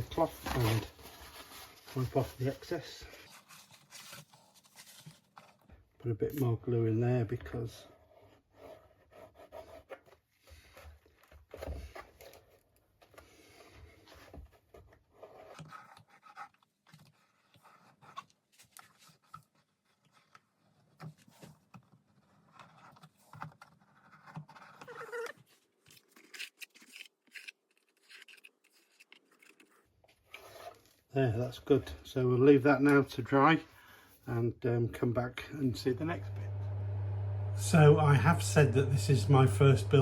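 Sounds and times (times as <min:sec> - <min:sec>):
small taps clicks and scrapes: 0:08.6 - 0:31.1.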